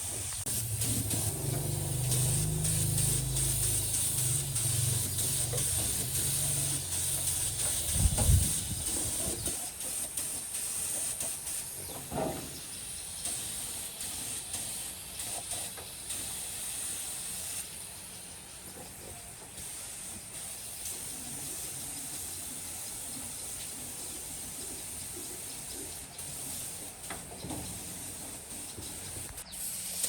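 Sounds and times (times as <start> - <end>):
high-pitched hiss of air: 0.0 - 18.3, 19.6 - 30.0.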